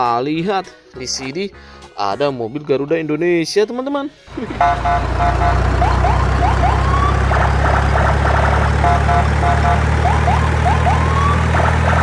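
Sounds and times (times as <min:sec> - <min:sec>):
looping electronic alarm: 0:04.4 - 0:12.0.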